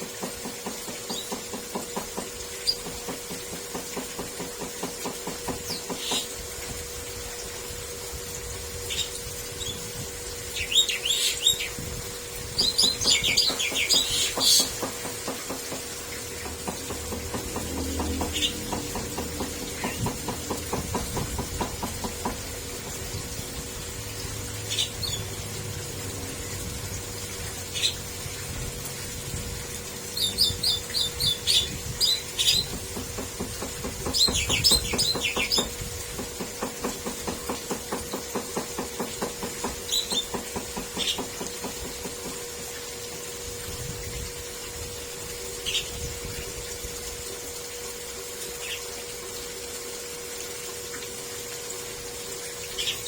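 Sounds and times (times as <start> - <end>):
small birds chirping: 10.5 - 11.8, 12.6 - 14.8, 30.2 - 32.7.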